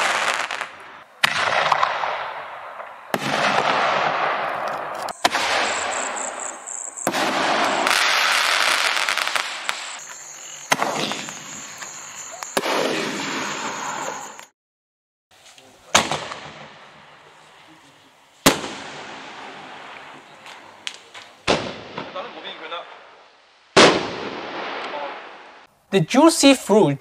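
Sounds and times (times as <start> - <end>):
firework shells bursting and crackling: 0.0 - 14.5, 18.4 - 25.7.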